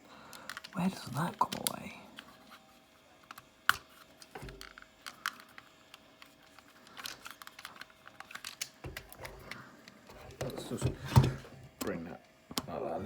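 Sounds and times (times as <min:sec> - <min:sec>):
plastic toy parts clicking: 0:00.3 - 0:00.8, 0:03.2 - 0:09.6.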